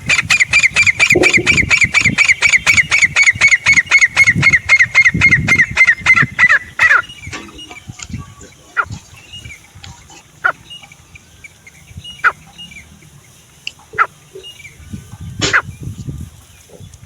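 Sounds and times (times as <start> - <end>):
francolin calling: 0.1 - 12.9
faint bird chirps: 1.0 - 2.8.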